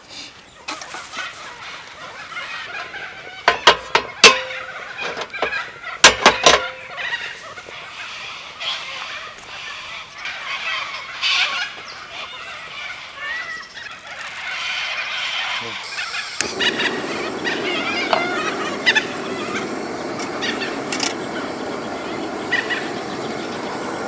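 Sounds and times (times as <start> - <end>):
birds calling: 6.8 - 24.0.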